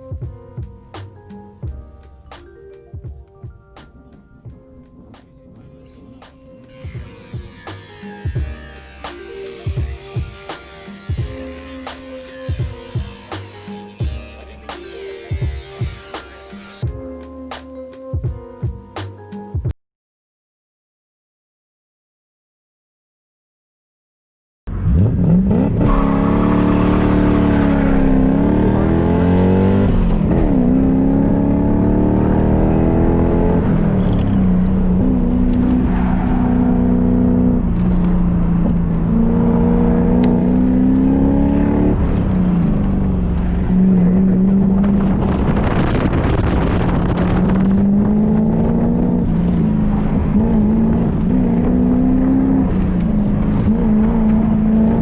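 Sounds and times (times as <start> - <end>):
car engine revving: 5.9 - 16.8, 24.7 - 55.0.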